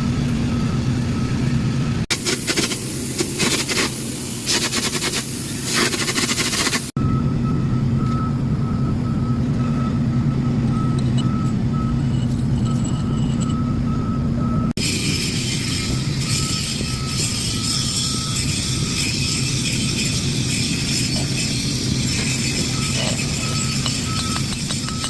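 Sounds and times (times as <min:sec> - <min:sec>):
welding arc crackling: 0:02.1 - 0:06.9, 0:14.8 - 0:24.6.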